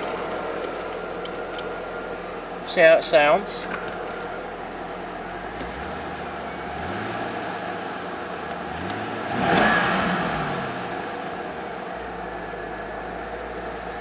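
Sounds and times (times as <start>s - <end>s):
car engine idling and revving: 0.0s - 14.0s.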